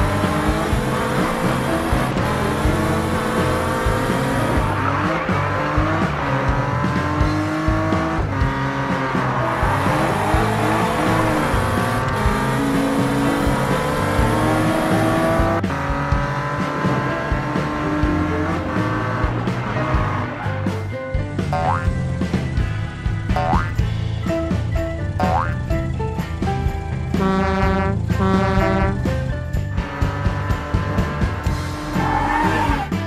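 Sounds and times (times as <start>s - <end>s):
cartoon car engine and tyres: 0.0s - 33.0s
upbeat cartoon music: 0.0s - 33.0s.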